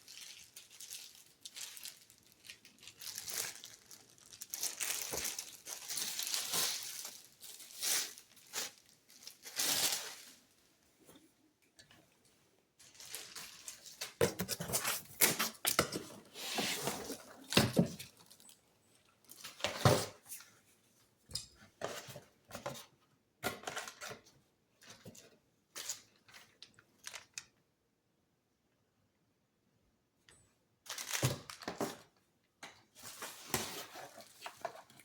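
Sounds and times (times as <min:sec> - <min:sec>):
packaging rustling and tearing: 0:00.0 - 0:10.4, 0:12.8 - 0:18.5, 0:30.9 - 0:32.1, 0:33.0 - 0:35.0.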